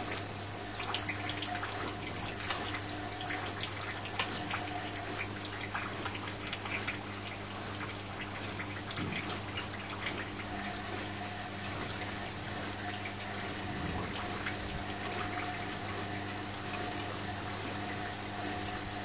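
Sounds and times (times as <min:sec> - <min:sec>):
drain pump humming: 0:00.0 - 0:19.0
water splashing and trickling: 0:00.0 - 0:19.0.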